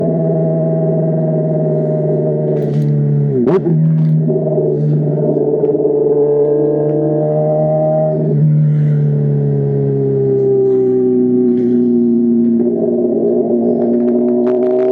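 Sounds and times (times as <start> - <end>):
motorcycle engine humming: 0.0 - 14.9.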